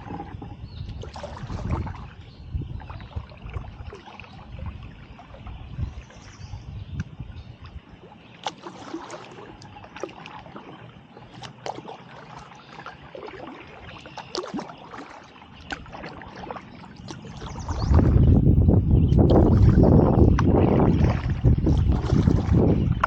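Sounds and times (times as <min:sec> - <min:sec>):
wind rumble on microphone: 0:00.0 - 0:08.2, 0:15.6 - 0:23.0
paddle dipping into water: 0:00.0 - 0:23.0
small splashes and drips: 0:00.9 - 0:06.3, 0:06.9 - 0:18.2, 0:19.2 - 0:23.0.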